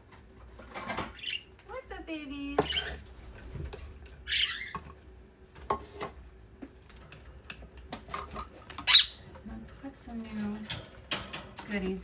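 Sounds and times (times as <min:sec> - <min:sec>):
parrot squawk: 0:04.2 - 0:04.8, 0:08.8 - 0:09.2.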